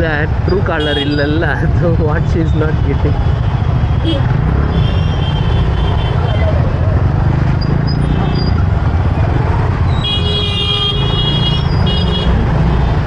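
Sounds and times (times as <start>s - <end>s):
traffic rumble: 0.0s - 13.0s
vehicle horn honking: 10.0s - 12.4s.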